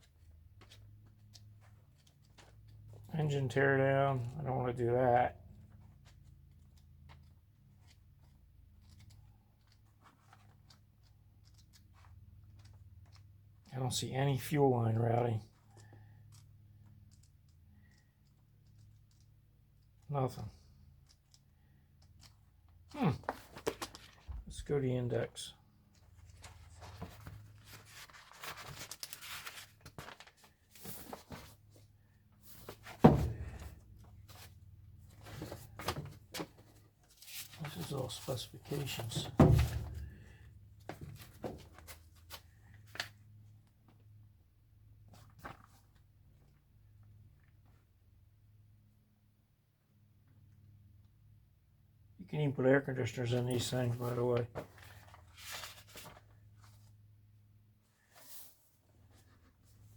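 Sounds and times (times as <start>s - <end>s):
paper pages rustling: 5.8s - 13.5s, 21.0s - 24.4s, 25.9s - 40.2s, 40.8s - 43.2s, 45.1s - 46.0s, 53.6s - 57.0s
thump: 32.9s - 33.8s.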